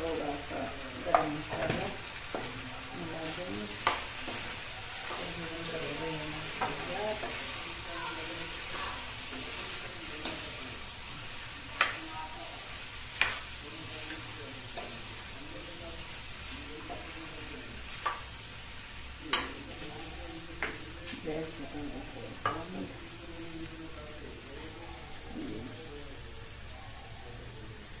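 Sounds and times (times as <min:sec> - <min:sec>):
vegetables sizzling in a pan: 0:00.0 - 0:28.0
spatula clacking against pan: 0:03.8 - 0:05.4, 0:06.5 - 0:07.6, 0:11.7 - 0:12.0, 0:13.1 - 0:15.1, 0:17.9 - 0:18.4, 0:19.3 - 0:19.6.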